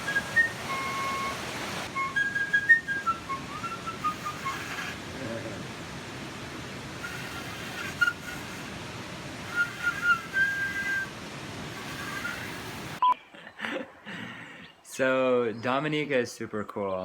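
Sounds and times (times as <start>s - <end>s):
person whistling: 0.0s - 1.3s, 2.0s - 4.9s, 9.5s - 11.1s.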